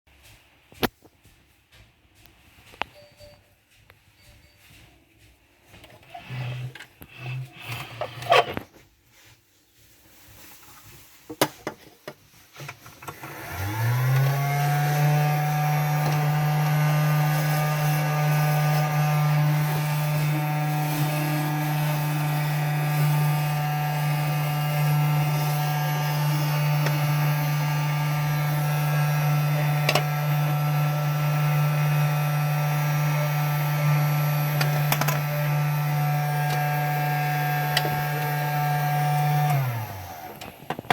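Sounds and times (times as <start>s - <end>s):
toy vacuum motor whining: 6.0s - 8.6s, 13.1s - 40.9s.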